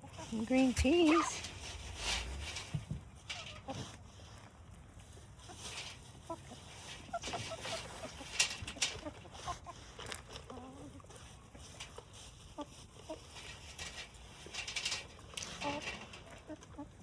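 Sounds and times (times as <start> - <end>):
hens clucking: 0.0 - 3.8, 5.4 - 9.8.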